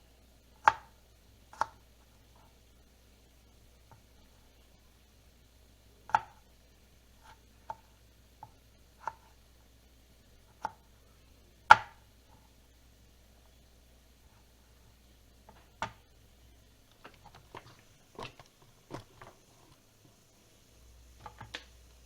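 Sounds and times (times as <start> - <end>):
knife chopping on cutting board: 11.7 - 12.0.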